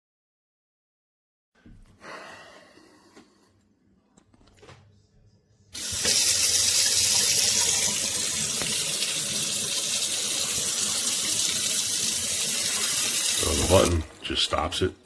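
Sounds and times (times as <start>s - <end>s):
kitchen faucet water running: 5.8s - 15.0s.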